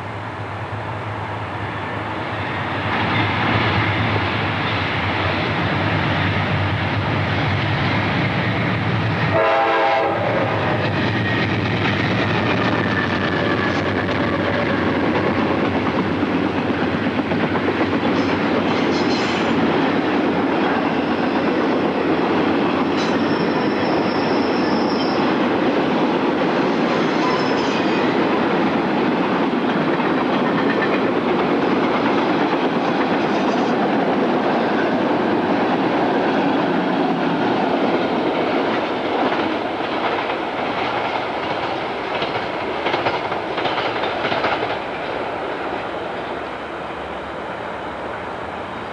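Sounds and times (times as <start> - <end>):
railroad cars rumbling: 0.0 - 48.9
high wheel squeal: 23.0 - 25.4.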